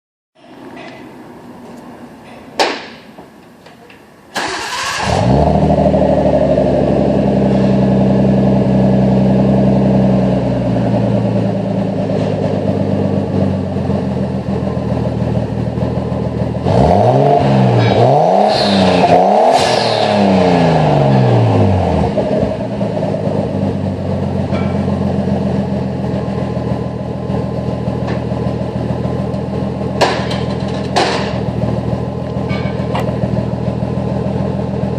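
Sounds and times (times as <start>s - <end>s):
car engine starting and idling: 4.3s - 34.9s
engine revving: 4.4s - 13.4s, 15.4s - 24.0s.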